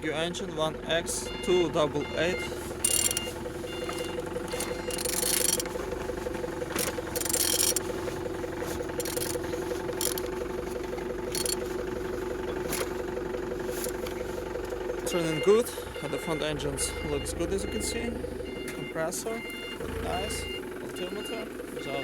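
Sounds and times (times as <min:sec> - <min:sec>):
engine crankshaft whirring: 0:00.0 - 0:21.9.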